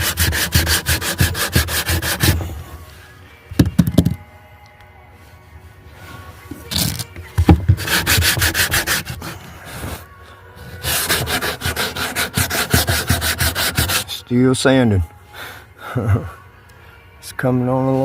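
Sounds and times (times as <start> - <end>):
sandpaper rasping on wood: 0.0 - 2.4, 7.7 - 10.0, 10.7 - 14.2.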